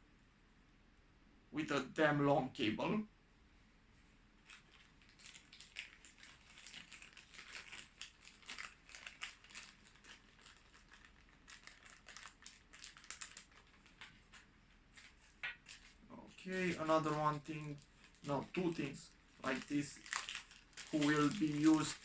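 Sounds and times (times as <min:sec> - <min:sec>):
plastic packaging crinkling: 0:04.4 - 0:22.0.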